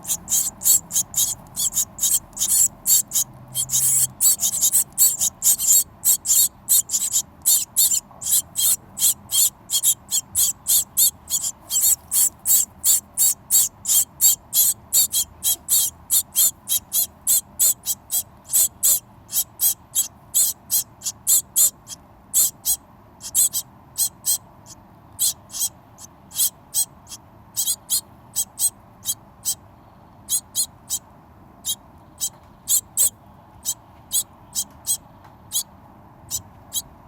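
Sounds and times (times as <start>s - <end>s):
birds chirping: 0.0s - 24.4s, 31.6s - 35.7s.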